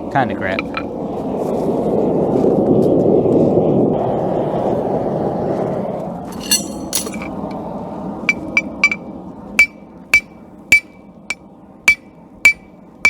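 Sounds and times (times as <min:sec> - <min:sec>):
hammer clinking on anvil: 0:06.3 - 0:07.3, 0:08.3 - 0:09.0, 0:11.9 - 0:12.7.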